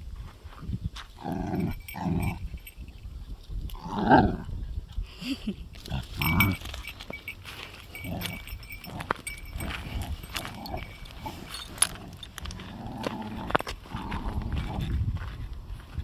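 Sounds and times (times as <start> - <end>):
dogs grunting and growling: 1.2 - 2.7, 3.7 - 15.0
scuffling: 5.8 - 16.0.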